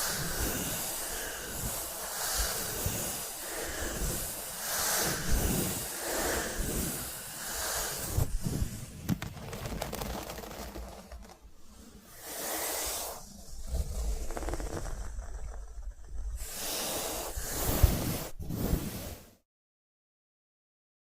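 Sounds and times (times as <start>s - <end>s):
packaging swishing rustles: 8.1s - 12.0s
packaging crinkling and crackling: 9.0s - 11.5s, 13.8s - 16.2s.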